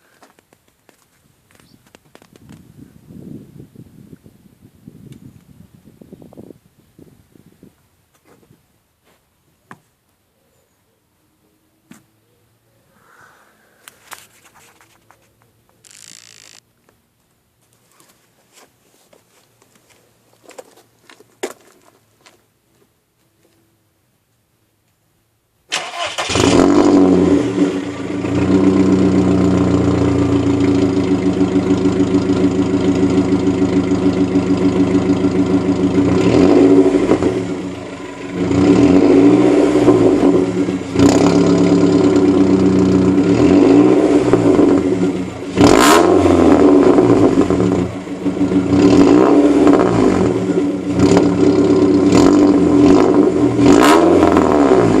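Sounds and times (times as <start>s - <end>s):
exhaust cracks: 1.5s - 2.7s, 15.8s - 16.7s, 25.7s - 55.0s
car engine revving: 25.8s - 55.0s.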